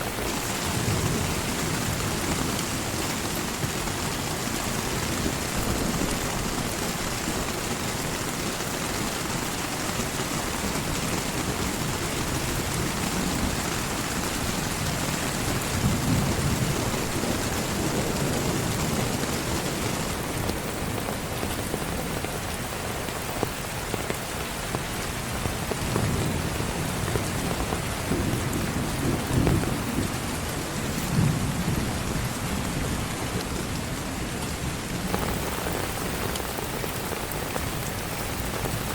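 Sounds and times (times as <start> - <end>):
thunder rumbling: 0.0 - 9.4, 10.0 - 22.1, 25.8 - 33.9, 34.9 - 38.9
heavy rain falling: 0.0 - 38.9.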